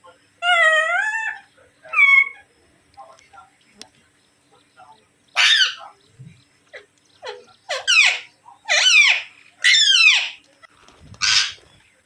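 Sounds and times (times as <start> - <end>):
parrots screeching: 0.4 - 2.5, 5.3 - 5.9, 6.8 - 10.4, 11.2 - 11.7.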